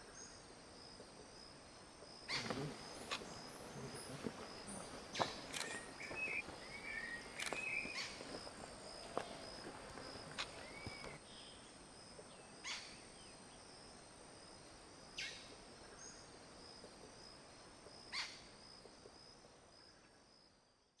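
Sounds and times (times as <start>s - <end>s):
high insect drone: 0.0s - 20.7s
bird descending calls: 2.3s - 11.2s.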